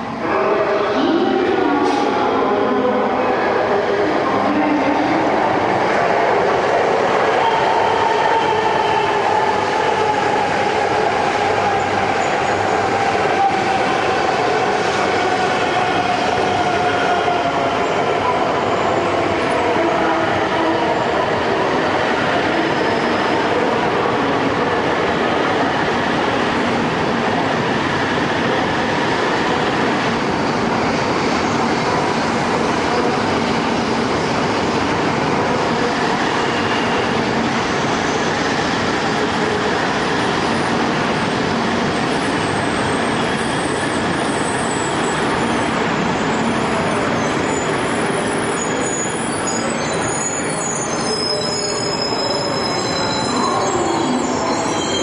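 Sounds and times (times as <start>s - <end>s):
high-pitched wheel squeal: 47.2s - 55.0s.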